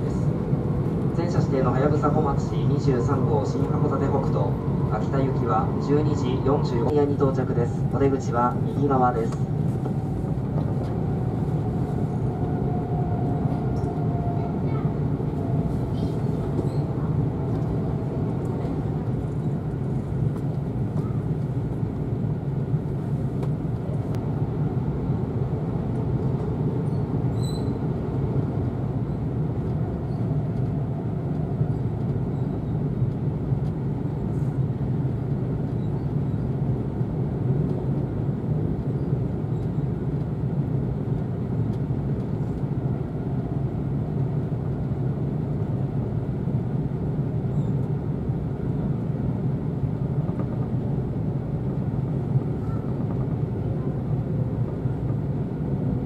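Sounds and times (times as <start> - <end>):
train rumble inside cabin: 0.0 - 56.0.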